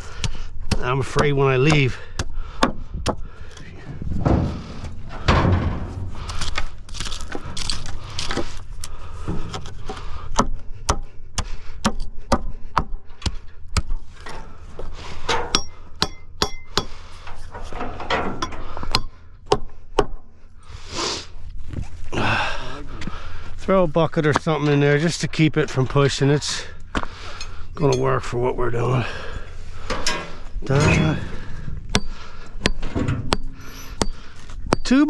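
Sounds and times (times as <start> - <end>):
low hum: 2.4 - 23.7.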